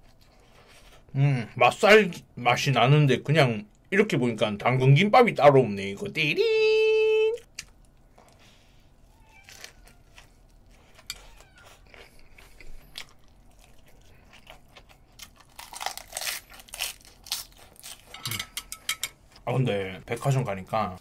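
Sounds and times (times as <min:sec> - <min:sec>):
crunching raw vegetables: 0:07.5 - 0:18.3.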